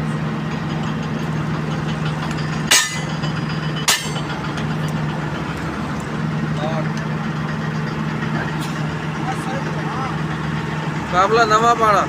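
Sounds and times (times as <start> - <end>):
diesel engine idling: 0.0 - 12.0
hammer strikes on metal: 2.7 - 4.4.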